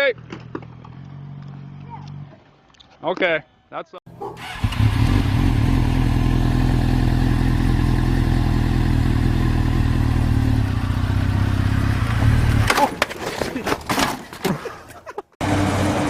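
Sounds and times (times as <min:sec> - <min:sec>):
motorcycle engine running: 0:04.4 - 0:12.7.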